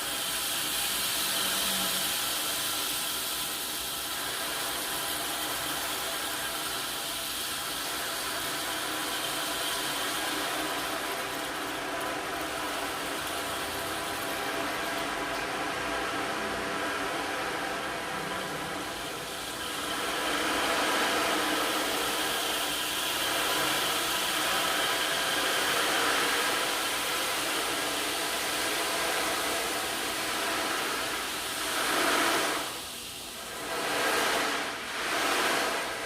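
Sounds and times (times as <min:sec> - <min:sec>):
steady rushing hiss: 0:00.0 - 0:36.0.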